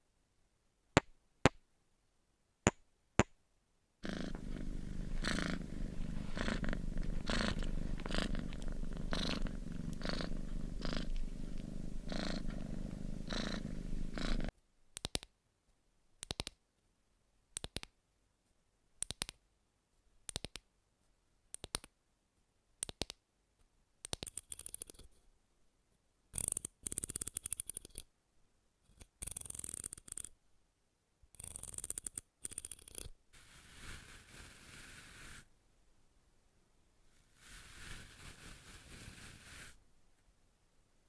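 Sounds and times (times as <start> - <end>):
scratchy rubbing strokes: 4.0 - 14.5, 32.7 - 35.5, 37.1 - 39.8.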